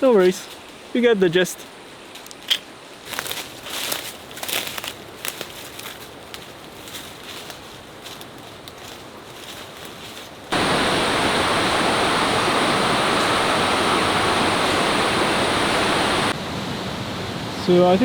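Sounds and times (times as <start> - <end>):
rushing river water: 10.5 - 18.0.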